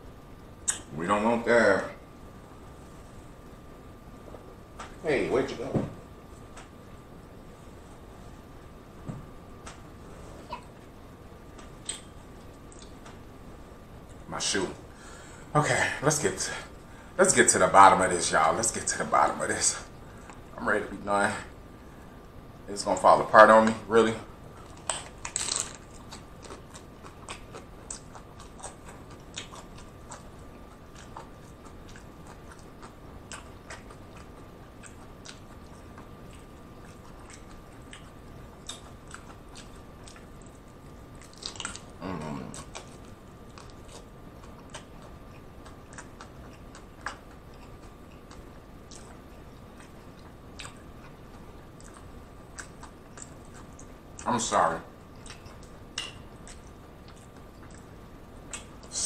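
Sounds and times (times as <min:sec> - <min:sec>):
faint high hum: 0:00.0 - 0:59.0
chewing crunchy tacos: 0:11.4 - 0:13.3, 0:23.0 - 0:59.0.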